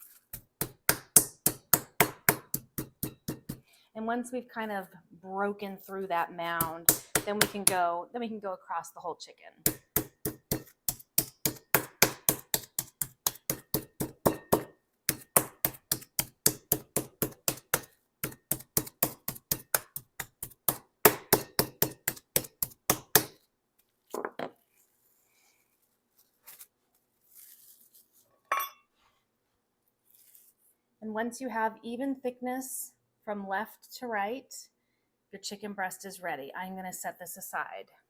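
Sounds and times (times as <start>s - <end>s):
meat mallet pounding chicken: 0.3s - 3.6s, 6.6s - 7.8s, 9.6s - 23.4s.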